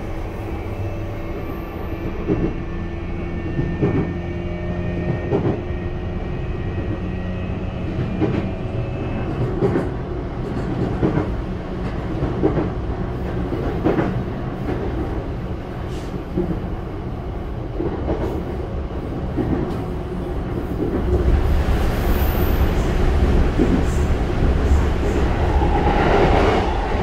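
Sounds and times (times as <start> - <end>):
electric train humming: 0.0 - 15.7, 18.4 - 27.0.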